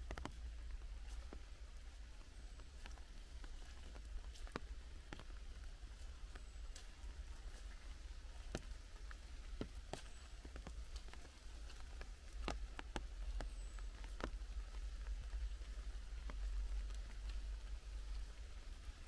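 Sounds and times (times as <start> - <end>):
raindrops tapping on leaves: 0.0 - 19.0.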